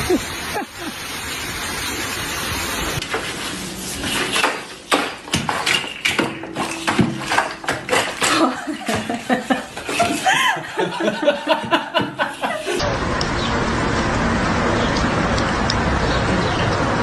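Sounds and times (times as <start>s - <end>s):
hard objects knocking together: 4.4s - 10.2s
rushing noise: 12.8s - 17.0s.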